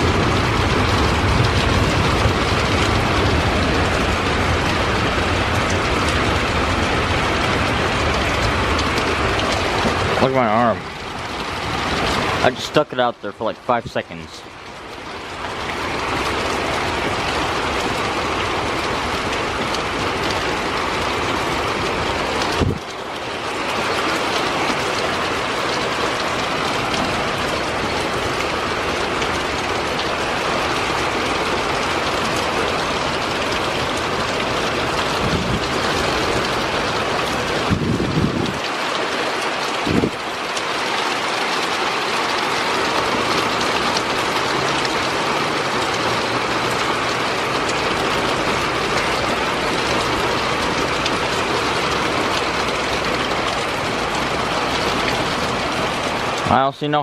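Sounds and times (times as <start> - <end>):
heavy rain pouring: 0.0 - 57.0
dull thumps: 35.2 - 36.4.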